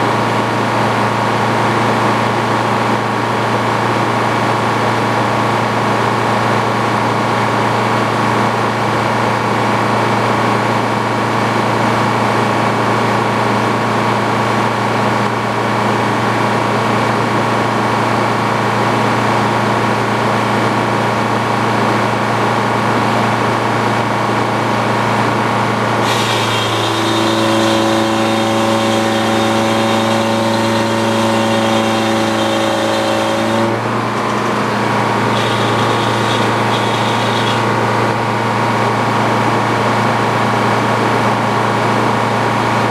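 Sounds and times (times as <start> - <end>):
sawmill engine and circular saw: 0.0 - 42.9.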